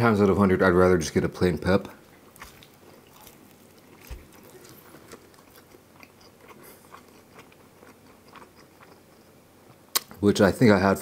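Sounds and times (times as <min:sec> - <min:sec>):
person chewing pizza: 0:02.1 - 0:10.2
wet mouth clicks: 0:09.9 - 0:10.2.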